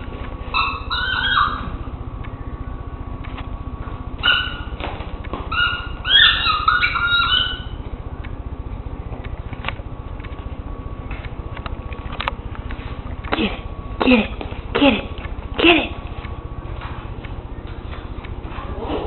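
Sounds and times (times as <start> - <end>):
squeaky dog toy squeaking: 0.6 - 1.7, 5.5 - 7.7.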